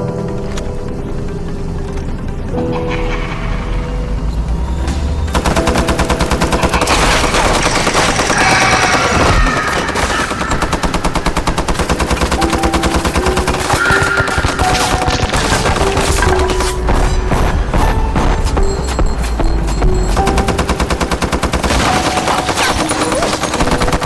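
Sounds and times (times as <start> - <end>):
music with sustained tones: 0.0 - 24.0
rapid machine-gun-like rattle: 5.3 - 18.6, 19.9 - 24.0.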